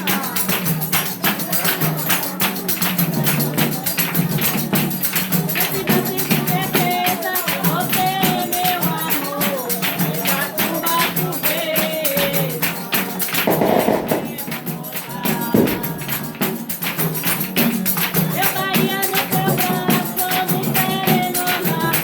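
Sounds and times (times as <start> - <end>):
tambourine and percussion: 0.0 - 22.0
person singing: 5.6 - 17.0, 18.2 - 22.0.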